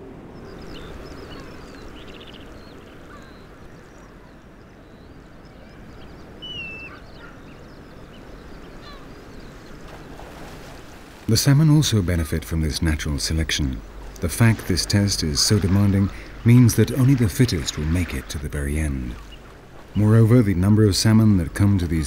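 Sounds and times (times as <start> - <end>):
birds squawking: 6.2 - 9.7, 11.9 - 22.0.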